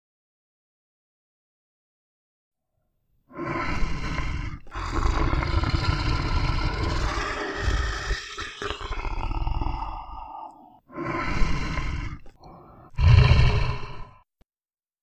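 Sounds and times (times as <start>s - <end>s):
bear roaring and growling: 3.3s - 14.2s.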